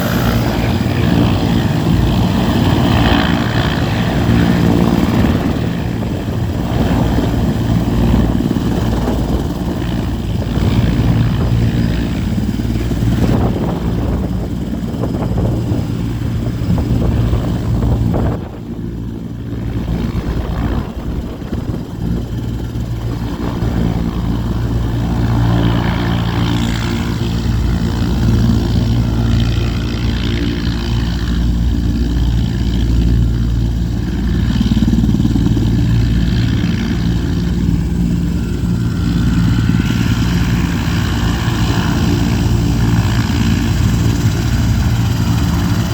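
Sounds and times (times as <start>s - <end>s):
helicopter engine and rotor drone: 0.0s - 45.9s.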